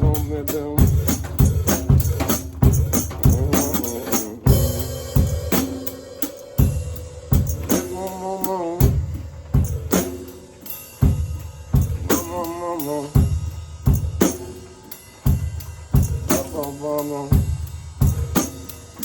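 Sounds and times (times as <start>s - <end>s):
drum kit groove: 0.0s - 19.0s
wordless vocal notes: 3.1s - 11.0s, 11.9s - 13.6s, 16.1s - 17.6s.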